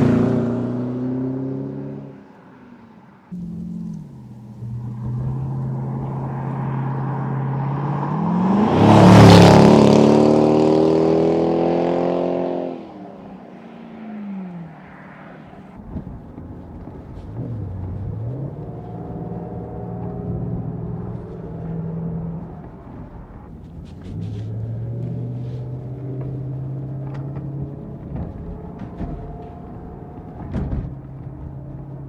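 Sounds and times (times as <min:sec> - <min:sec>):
car engine and exhaust: 0:00.0 - 0:32.0.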